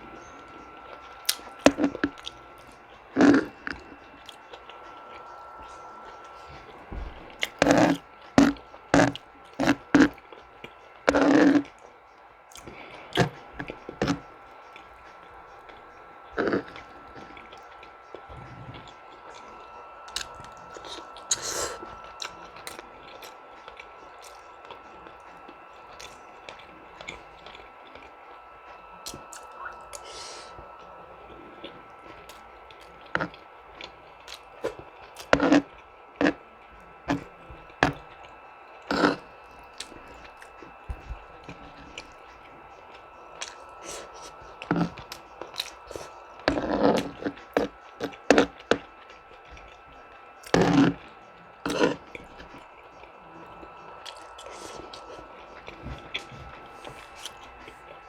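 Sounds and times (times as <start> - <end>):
chewing and mouth sounds: 0.0 - 58.0.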